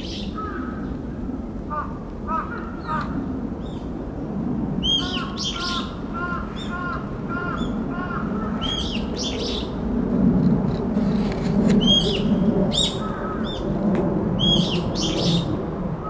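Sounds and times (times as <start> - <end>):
songbirds calling: 0.0 - 3.9, 4.8 - 9.8, 11.7 - 13.8, 14.4 - 15.6
sharp down-slurred bird calls: 4.8 - 9.7.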